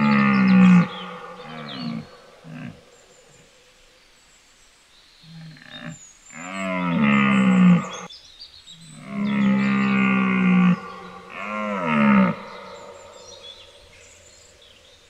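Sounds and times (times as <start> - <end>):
deer stag bellowing: 0.0 - 2.8, 9.0 - 13.3.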